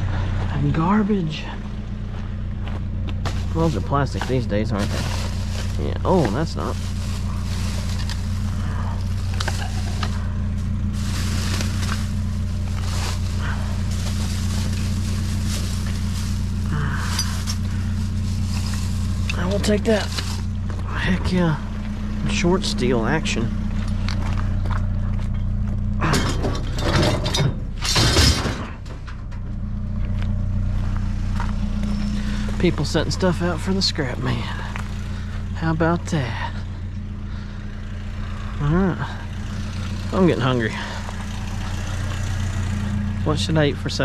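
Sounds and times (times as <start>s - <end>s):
vehicle engine idling: 0.0s - 44.0s
scrap steel rattling and clanking: 3.2s - 22.6s, 23.3s - 30.6s
junk clicking and knocking: 23.5s - 31.6s
loud metal crash: 26.1s - 28.9s.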